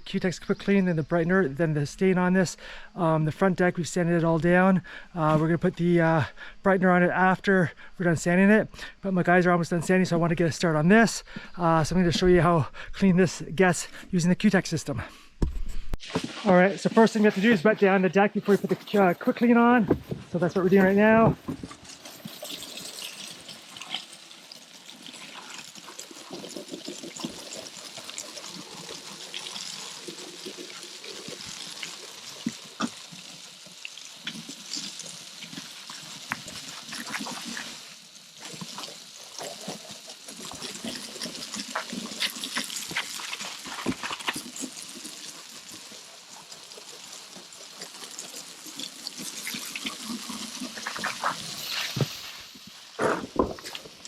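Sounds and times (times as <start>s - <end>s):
water spraying on wooden boards: 18.5s - 54.0s.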